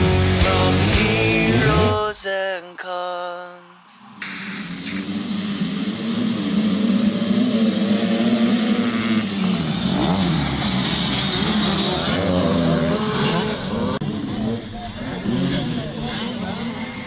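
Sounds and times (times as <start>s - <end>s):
motocross engines revving: 0.0s - 2.1s, 4.1s - 17.0s.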